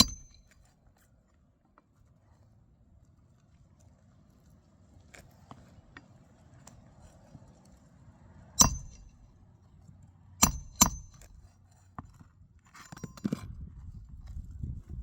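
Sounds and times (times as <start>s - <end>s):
metal-on-metal tool strikes: 0.0s - 0.6s, 8.6s - 9.2s, 10.4s - 11.3s.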